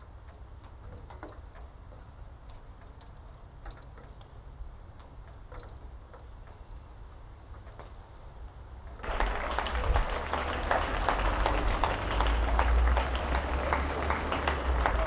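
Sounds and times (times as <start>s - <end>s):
light clicks and ticks: 0.1s - 9.0s.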